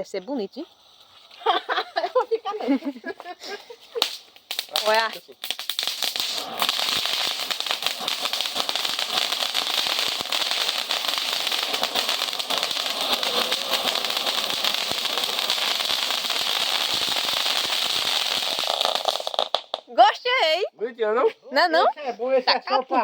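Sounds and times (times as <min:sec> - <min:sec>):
firework hissing and crackling: 0:00.0 - 0:20.5.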